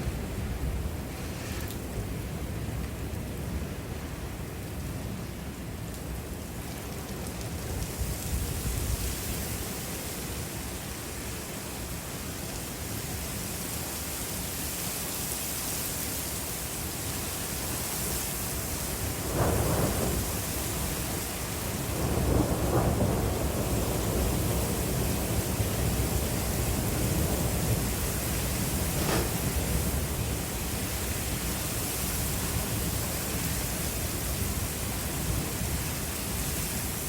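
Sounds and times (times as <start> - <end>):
steady rain: 0.0 - 37.0
wind hiss: 0.0 - 37.0
low rumbling thunder: 18.9 - 31.2.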